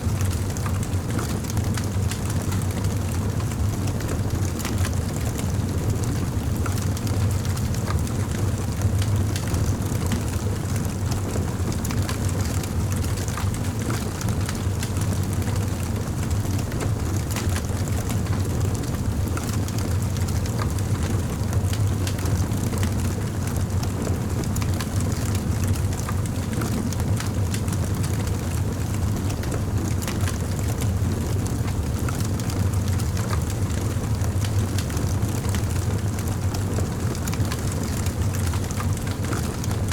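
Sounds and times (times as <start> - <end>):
fire crackling and popping: 0.2 - 2.7, 21.7 - 39.9
campfire burning: 0.2 - 39.9.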